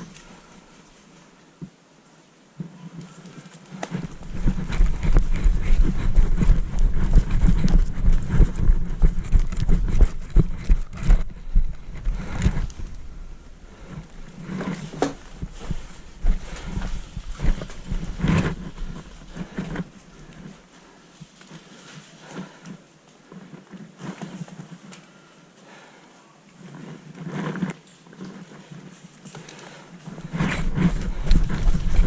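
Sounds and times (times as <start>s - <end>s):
gear jostling against camera: 2.6s - 25.2s, 26.6s - 32.0s
quick footsteps: 3.2s - 20.7s, 29.3s - 32.0s.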